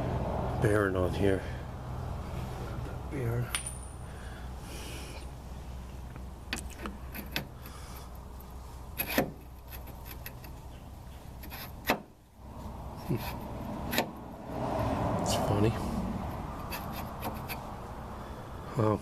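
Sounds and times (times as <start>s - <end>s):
metal parts clinking and knocking: 3.5s - 4.0s.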